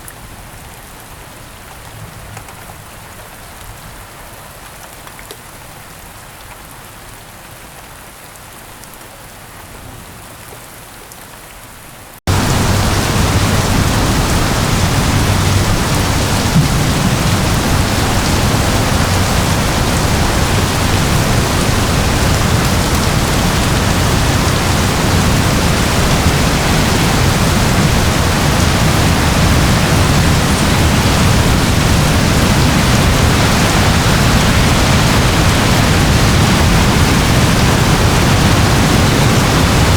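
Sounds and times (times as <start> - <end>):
rain falling: 0.0 - 39.9
heavy rain rushing: 12.2 - 39.9.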